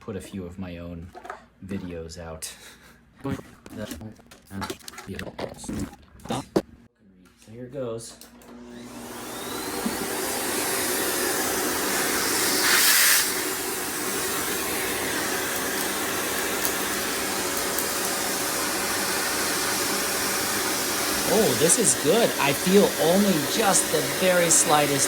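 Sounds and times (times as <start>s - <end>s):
vacuum cleaner motor whine: 8.2s - 25.0s.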